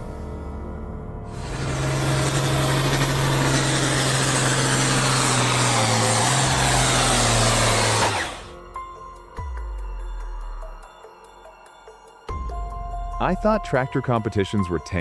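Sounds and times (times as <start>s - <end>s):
background music: 0.0s - 15.0s
tractor engine running under load: 1.4s - 8.5s.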